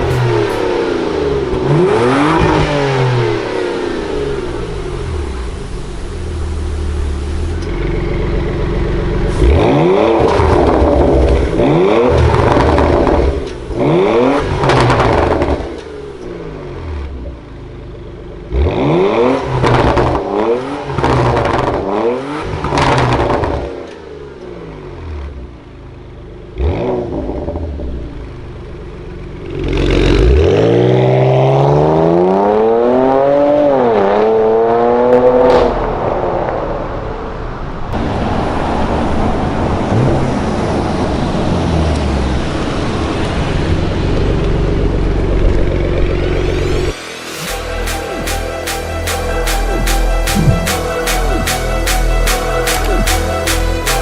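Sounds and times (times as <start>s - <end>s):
exhaust crackles: 0.0s - 23.8s
car engine revving: 0.0s - 25.5s, 29.1s - 54.0s.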